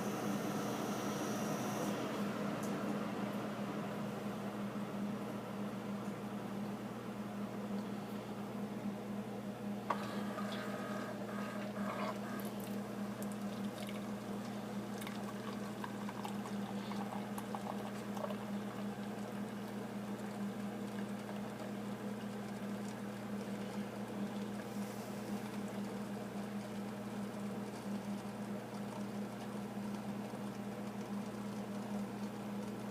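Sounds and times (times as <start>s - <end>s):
coffee maker pump hum: 0.0s - 32.9s
coffee pouring into cup: 9.9s - 21.7s.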